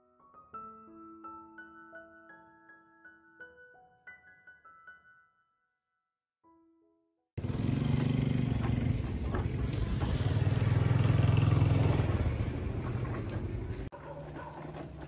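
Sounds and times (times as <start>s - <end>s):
motorcycle engine running: 7.4s - 13.9s
cart wheels crunching over gravel: 7.4s - 15.0s.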